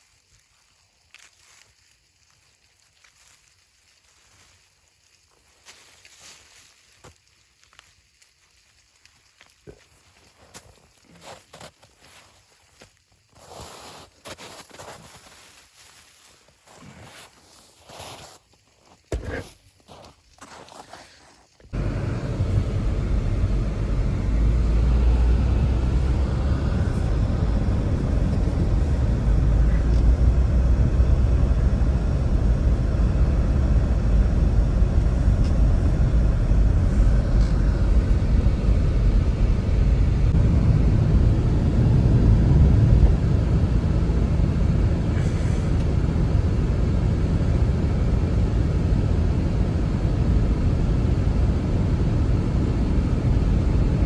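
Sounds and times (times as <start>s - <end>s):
blizzard wind gusting: 21.7s - 54.0s.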